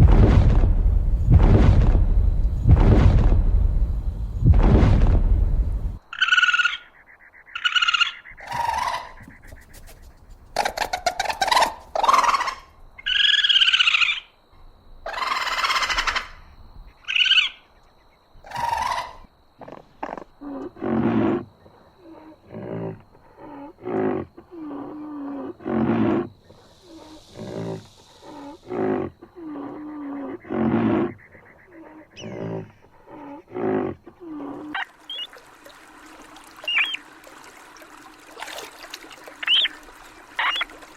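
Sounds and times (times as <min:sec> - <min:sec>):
animal calls: 0:15.1 - 0:16.4, 0:20.0 - 0:35.4, 0:39.4 - 0:40.9.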